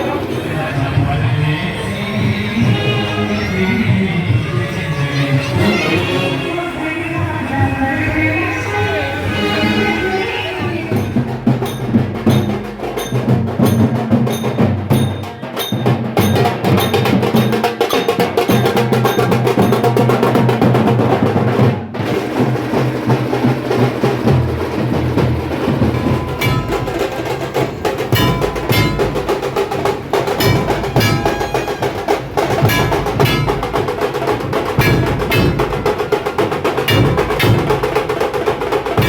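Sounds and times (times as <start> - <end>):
fast loud drumming: 10.6 - 39.0.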